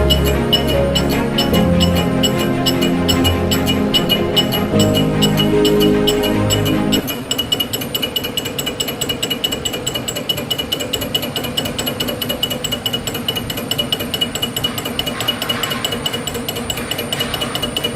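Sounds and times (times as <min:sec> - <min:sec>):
machine tool whine: 0:00.0 - 0:13.4
rapid mechanical ticking: 0:00.0 - 0:17.9.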